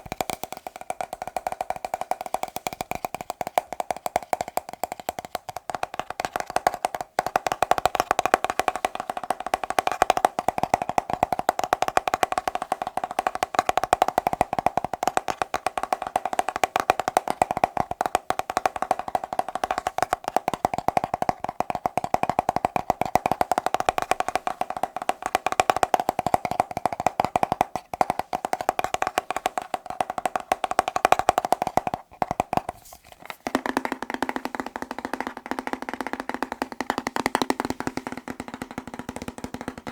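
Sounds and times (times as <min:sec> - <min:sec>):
fast tapping on hollow object: 0:00.0 - 0:39.9.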